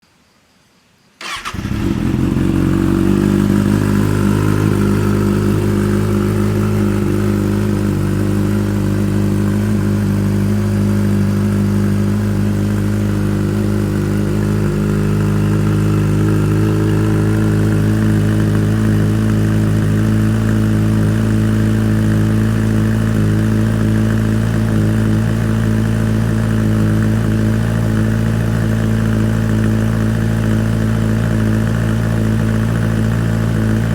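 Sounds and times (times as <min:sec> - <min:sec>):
electric starter cranking: 0:01.2 - 0:02.9
motorcycle engine idling: 0:01.2 - 0:33.9.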